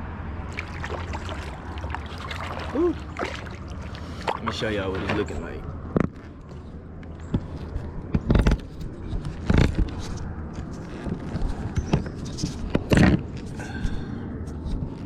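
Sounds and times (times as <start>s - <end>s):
steady low rumble: 0.0s - 15.0s
knocks and scrapes of kayak gear: 4.2s - 13.6s.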